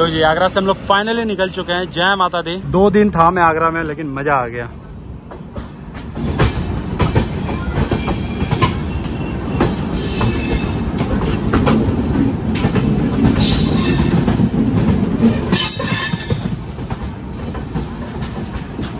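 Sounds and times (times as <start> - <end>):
train wheels rumbling on rails: 0.0 - 18.9
wheels clacking over rail joints: 5.2 - 18.9.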